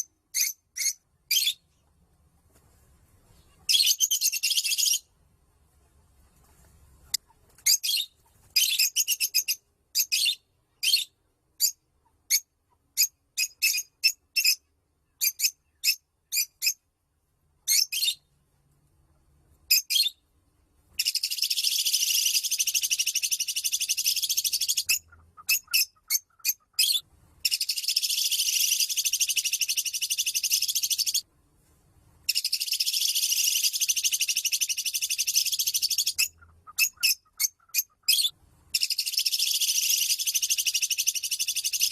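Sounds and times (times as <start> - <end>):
bird high chirps: 0.0 - 1.8, 3.3 - 5.1, 7.6 - 16.8, 17.6 - 18.3, 19.7 - 20.2, 21.0 - 31.2, 32.3 - 41.9
bird chattering trills: 32.3 - 41.9.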